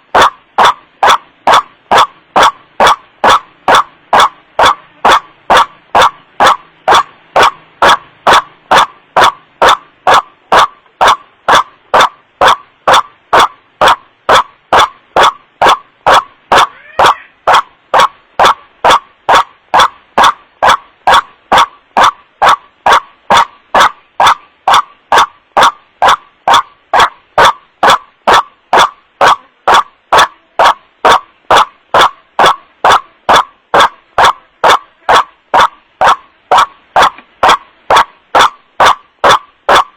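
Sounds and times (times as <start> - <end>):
distorted bird call recording: 0.0 - 39.9.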